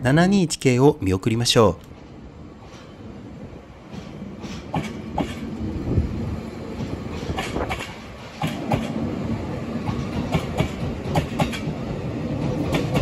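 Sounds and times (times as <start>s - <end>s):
train rumble: 1.8s - 13.0s
wheels clacking over rail joints: 3.8s - 13.0s.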